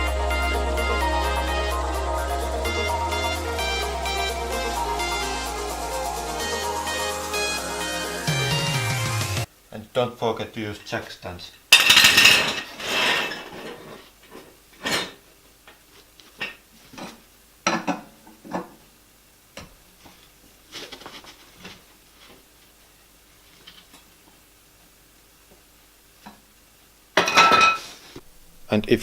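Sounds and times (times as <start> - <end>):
metal tools clinking and knocking: 11.8 - 12.7.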